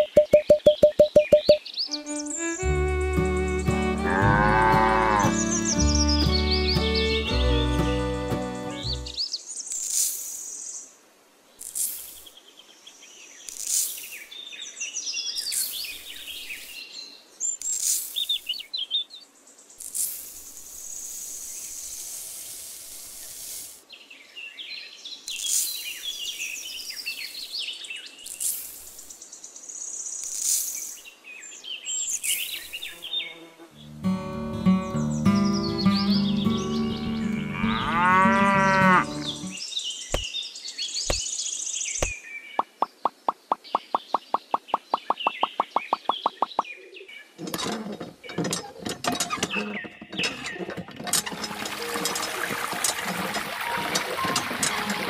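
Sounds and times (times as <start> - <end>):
birds chirping: 0.0 - 9.5, 31.4 - 55.0.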